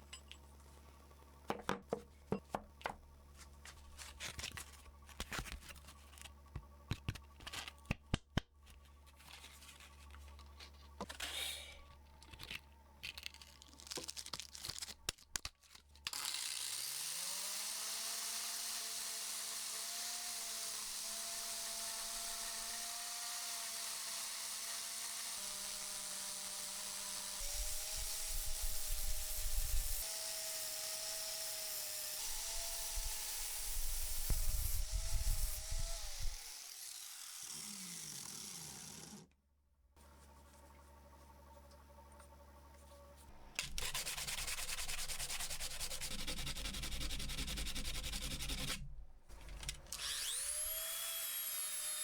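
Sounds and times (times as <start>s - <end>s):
tools clicking and knocking: 0.0s - 0.5s
power tool motor whining: 16.2s - 39.3s, 49.7s - 52.0s.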